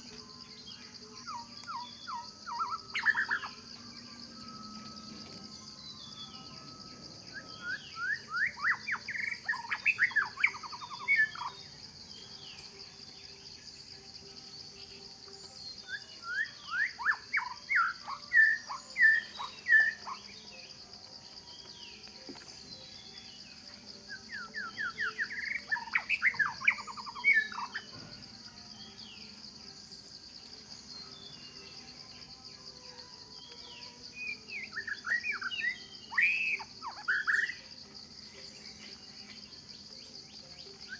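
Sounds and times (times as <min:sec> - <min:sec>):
songbird whistling: 0:00.0 - 0:13.0, 0:14.5 - 0:20.8, 0:21.5 - 0:28.2, 0:33.4 - 0:37.7
insects droning: 0:00.0 - 0:40.9.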